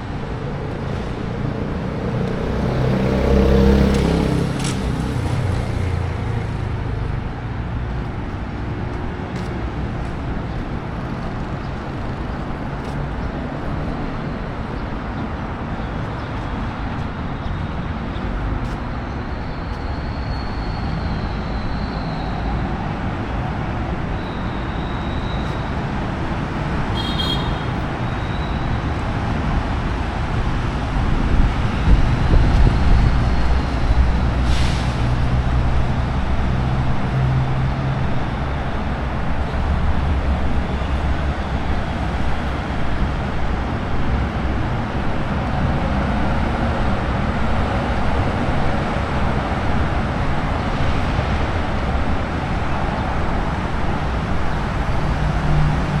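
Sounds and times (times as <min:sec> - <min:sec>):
road traffic noise: 0:00.0 - 0:56.0
vehicle passing close: 0:01.0 - 0:06.8.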